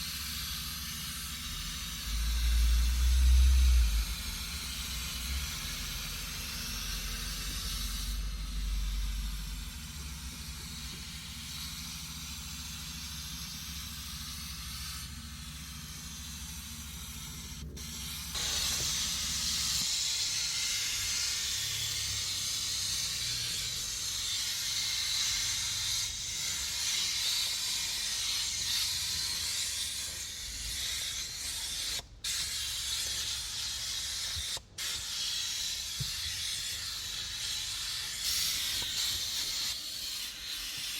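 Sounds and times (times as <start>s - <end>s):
spray hissing: 0.7s - 40.9s
low hum: 1.3s - 11.5s.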